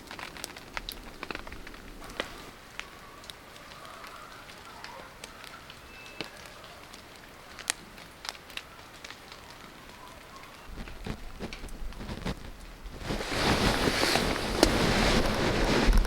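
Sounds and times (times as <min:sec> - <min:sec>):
fire pops: 0:00.0 - 0:03.4, 0:10.7 - 0:16.0
campfire crackling: 0:00.0 - 0:16.0
rain hiss: 0:00.0 - 0:16.0.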